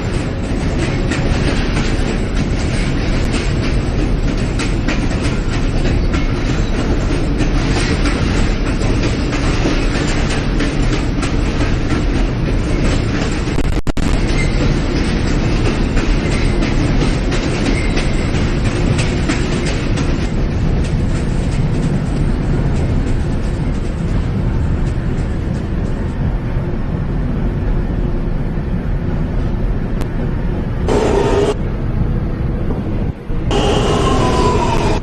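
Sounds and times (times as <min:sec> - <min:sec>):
clickety-clack of rail joints: 0:00.0 - 0:35.0
train wheels rumbling on rail: 0:00.0 - 0:35.0.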